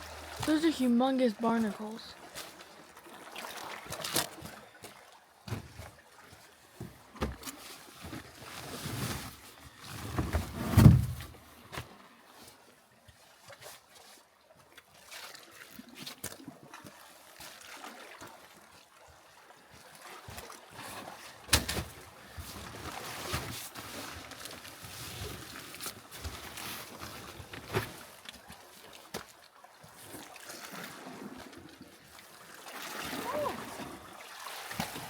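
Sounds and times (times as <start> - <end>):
water sloshing and splashing: 0.0 - 35.0
hard knocks on boat: 6.8 - 7.4.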